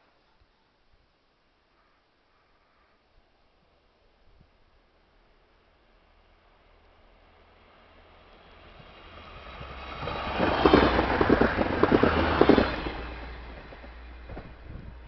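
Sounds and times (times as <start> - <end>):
passing train rushing: 5.8 - 15.0
train wheels clattering over rails: 9.3 - 15.0.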